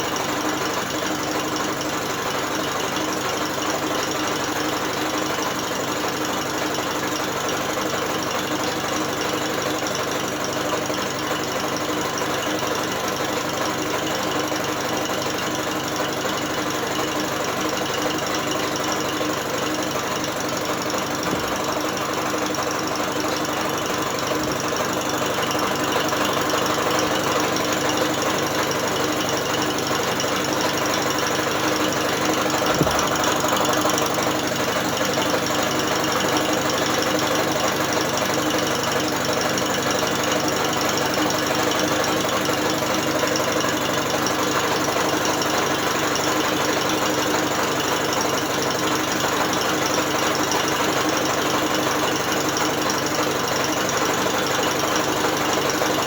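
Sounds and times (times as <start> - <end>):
short knock: 32.6 - 33.4.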